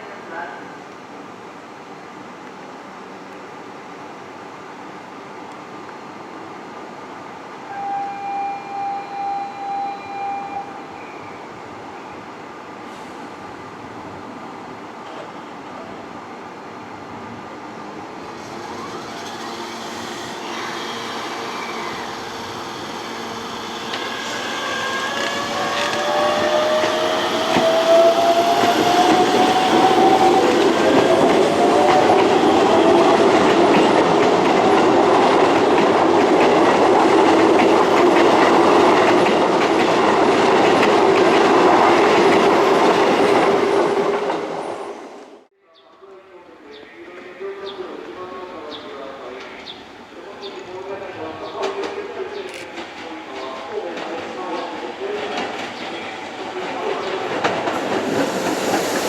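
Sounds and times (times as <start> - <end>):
electric train passing: 16.6 - 45.4, 49.8 - 59.0
train motor whine: 18.2 - 33.3.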